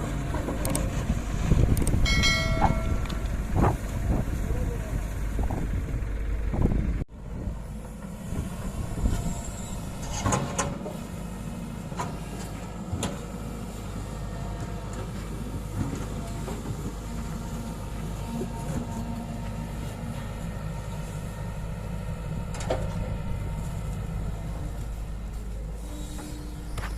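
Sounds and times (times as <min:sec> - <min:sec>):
tractor diesel engine under load: 0:00.0 - 0:26.9
sharp metal clanks: 0:02.1 - 0:03.2.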